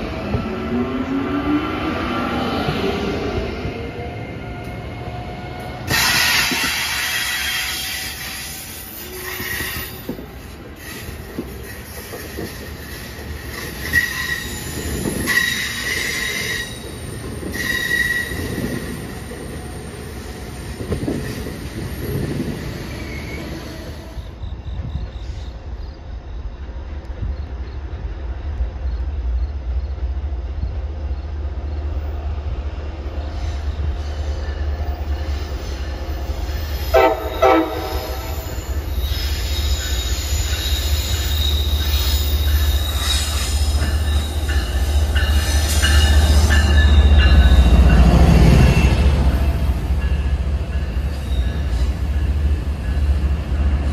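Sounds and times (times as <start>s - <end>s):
train passing close by: 0.0s - 53.9s
train horn blasts: 36.9s - 38.6s.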